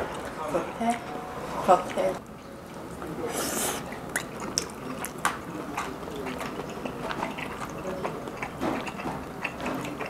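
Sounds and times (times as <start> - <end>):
person chewing: 3.3 - 10.0.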